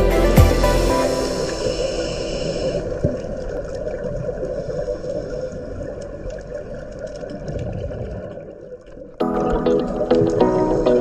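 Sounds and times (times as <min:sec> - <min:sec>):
background music: 0:00.0 - 0:02.7, 0:09.2 - 0:11.0.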